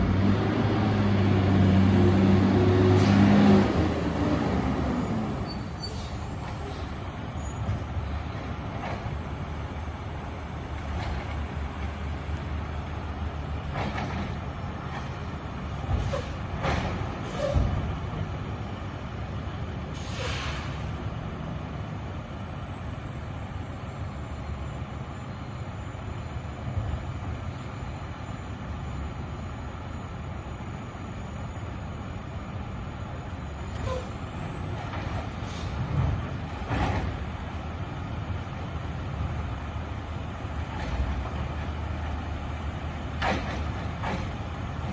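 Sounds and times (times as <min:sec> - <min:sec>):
garbage truck engine rumbling: 0:00.0 - 0:44.9
clunks: 0:13.6 - 0:17.9, 0:33.7 - 0:37.4, 0:43.1 - 0:44.9.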